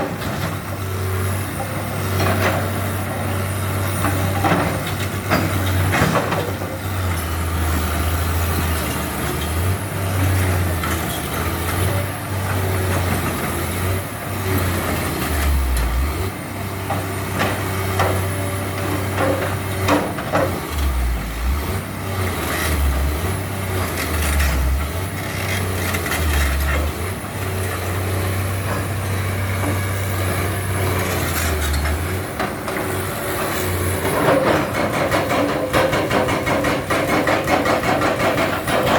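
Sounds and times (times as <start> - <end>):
excavator diesel engine under load: 0.0 - 38.9
clanks and knocks: 18.9 - 20.6, 31.7 - 38.9.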